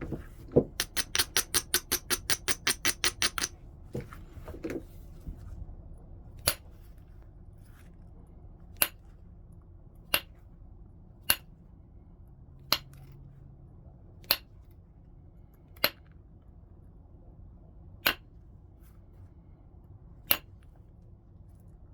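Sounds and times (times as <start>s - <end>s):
knapping tool striking stone: 0.6s - 3.5s, 8.8s - 9.0s, 10.1s - 10.4s, 18.0s - 18.3s.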